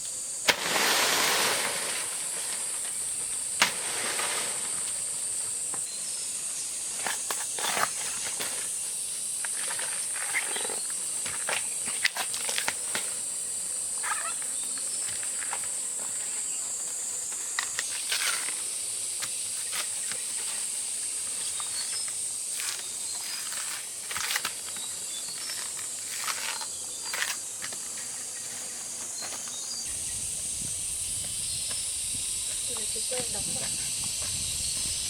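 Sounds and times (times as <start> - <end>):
cicadas droning: 0.0 - 35.0
plant stems crackling: 22.6 - 24.8.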